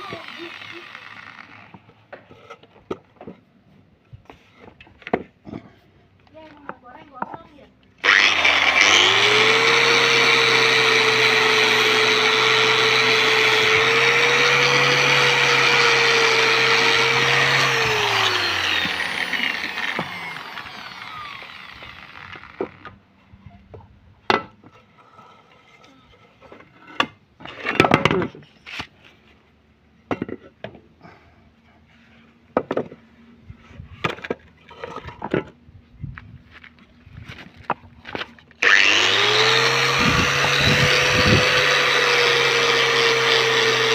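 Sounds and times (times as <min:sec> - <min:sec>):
angle grinder wire brush whine: 0:00.0 - 0:01.8, 0:08.0 - 0:22.9, 0:38.6 - 0:43.9
wire brush scrubbing rust: 0:08.0 - 0:21.9.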